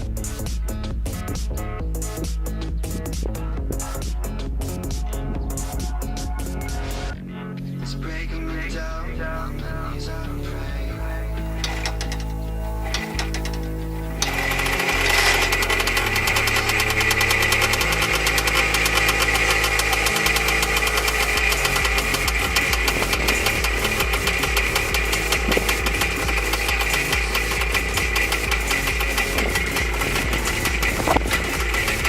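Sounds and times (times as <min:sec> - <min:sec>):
two-stroke motorcycle engine idling: 0:10.7 - 0:32.0.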